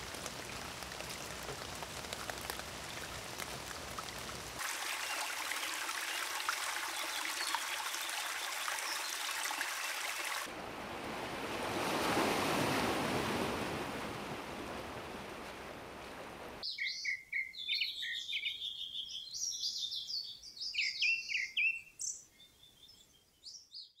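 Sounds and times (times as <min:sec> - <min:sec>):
rain pattering: 0:00.0 - 0:08.0
rushing water-like noise: 0:00.0 - 0:16.6
small birds chirping: 0:16.6 - 0:24.0.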